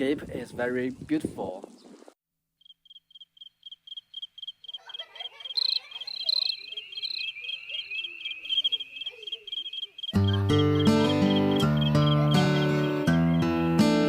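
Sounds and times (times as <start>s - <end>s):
crickets chirping: 2.6s - 13.6s
insect trilling: 2.6s - 13.6s.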